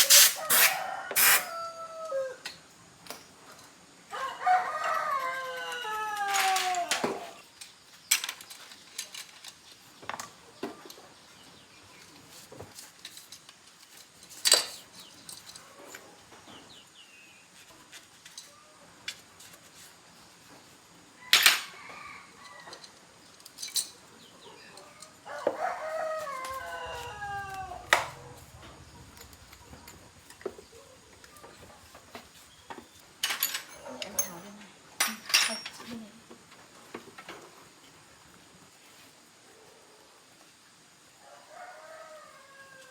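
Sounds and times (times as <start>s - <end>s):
rooster crowing: 0.2s - 2.5s, 4.1s - 7.4s, 21.6s - 22.8s, 24.9s - 32.0s, 41.2s - 42.9s
metal tools clinking: 23.4s - 24.1s, 33.2s - 35.9s.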